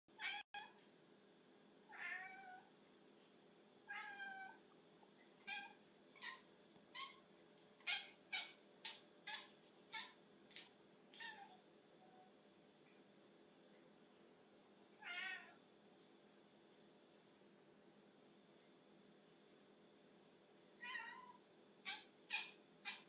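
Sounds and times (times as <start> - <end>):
cat meowing: 0.2 - 0.7, 1.9 - 2.7, 3.9 - 4.6, 7.9 - 11.6, 15.0 - 15.6, 20.8 - 23.0.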